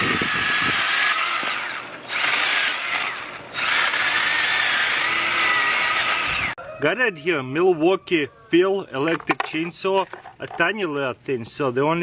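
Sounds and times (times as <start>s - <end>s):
electric chainsaw motor whining: 0.0s - 6.6s.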